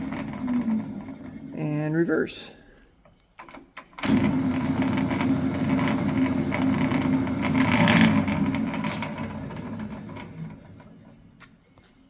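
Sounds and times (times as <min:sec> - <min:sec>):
metal lathe whirring: 0:00.0 - 0:01.9, 0:04.0 - 0:11.4.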